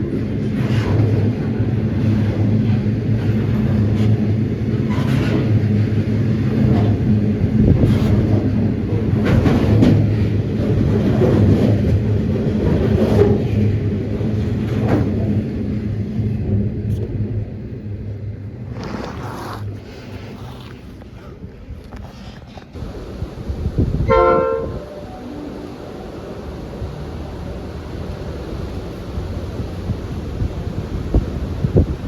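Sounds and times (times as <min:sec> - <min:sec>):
diesel locomotive engine drone: 0:00.0 - 0:32.0
train wheels clacking over rail joints: 0:00.2 - 0:15.6.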